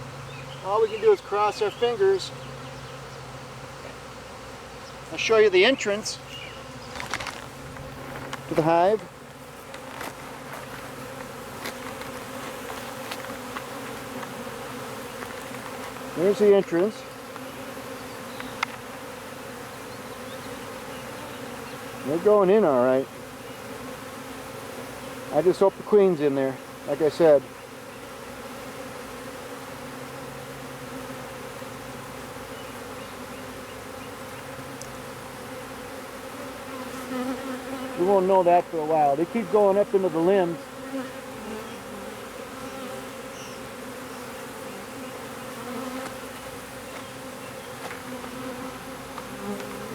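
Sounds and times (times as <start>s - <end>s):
bee swarm buzzing: 0.0s - 49.9s
faint ticks: 34.8s - 35.0s.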